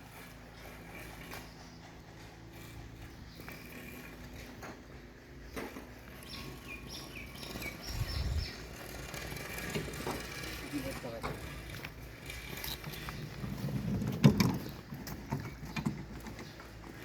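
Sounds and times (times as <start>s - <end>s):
bird chirping: 5.5s - 9.2s.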